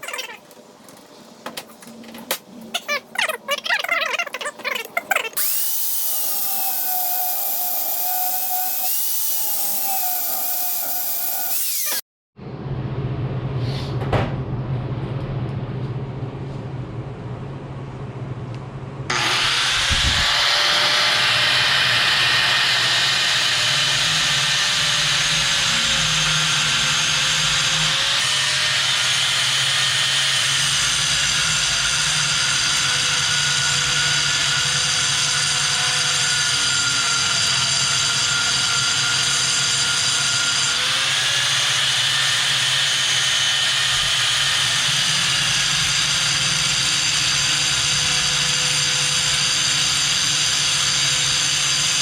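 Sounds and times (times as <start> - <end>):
angle grinder cutting metal: 5.1 - 12.0, 19.1 - 52.0.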